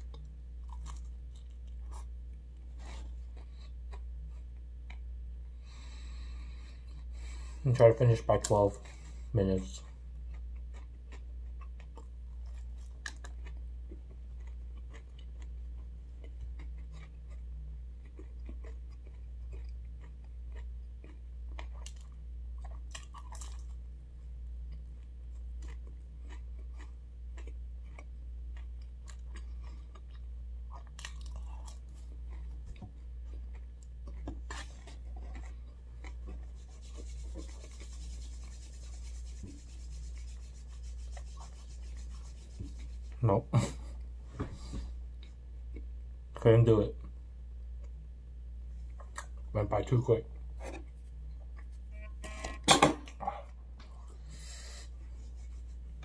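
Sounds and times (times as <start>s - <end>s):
chewing and crunching: 0.0s - 2.1s, 9.8s - 23.8s, 24.6s - 39.2s
steady low hum: 0.0s - 56.0s.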